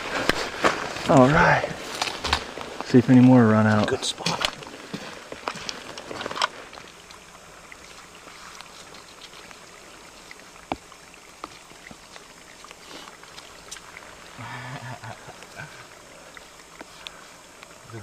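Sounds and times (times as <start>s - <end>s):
rain falling: 0.0s - 18.0s
water drips: 0.0s - 18.0s.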